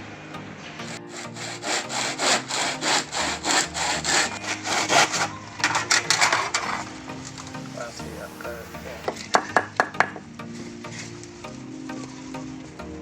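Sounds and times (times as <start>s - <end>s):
hand saw cutting coconut shell: 1.1s - 6.7s.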